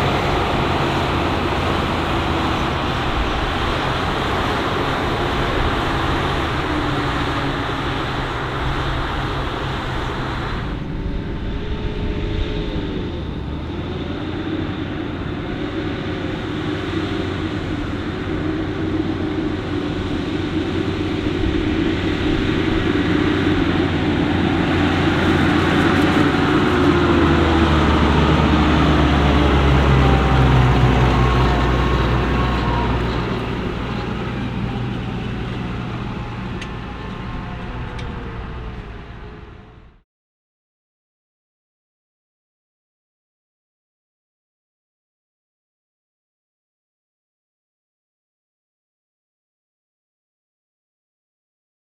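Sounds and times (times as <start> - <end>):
diesel farm machinery engines: 0.0 - 40.0.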